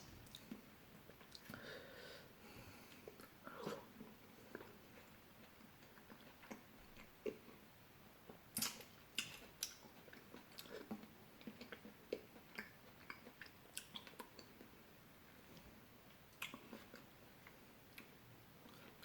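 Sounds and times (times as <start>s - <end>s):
person eating fruit: 2.9s - 7.5s, 8.2s - 14.8s, 16.1s - 19.0s.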